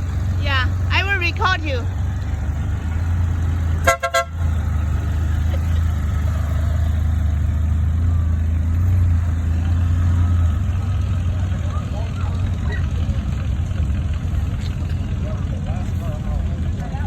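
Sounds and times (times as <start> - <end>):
vehicle engine humming: 0.0 - 17.0
horn toots: 3.7 - 4.7.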